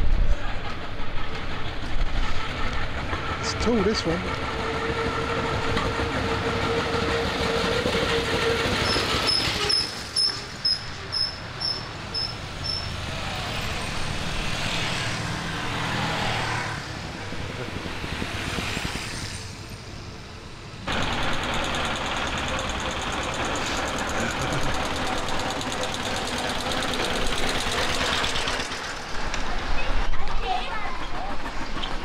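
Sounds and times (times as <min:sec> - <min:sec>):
old car engine passing: 0:01.6 - 0:32.0
motorcycles riding past: 0:11.9 - 0:20.3.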